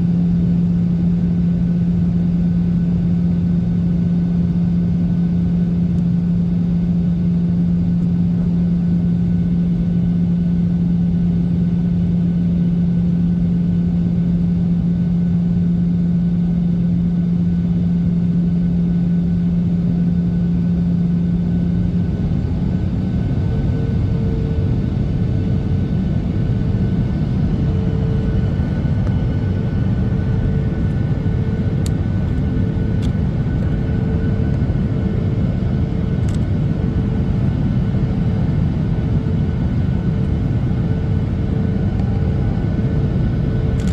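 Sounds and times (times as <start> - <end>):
airplane engines rumbling: 0.0 - 43.9
strong low hum: 21.3 - 43.9.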